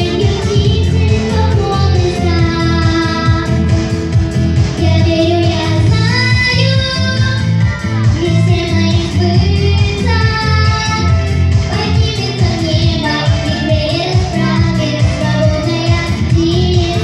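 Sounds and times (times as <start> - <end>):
girl singing: 0.0 - 3.8, 4.8 - 17.0
instrumental music with beat and bass: 0.0 - 17.0.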